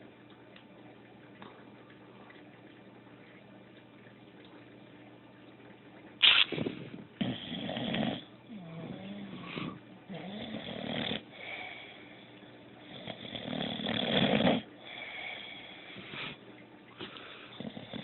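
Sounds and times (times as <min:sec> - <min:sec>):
dog snoring: 0:06.6 - 0:12.0, 0:12.8 - 0:16.4, 0:17.6 - 0:18.0.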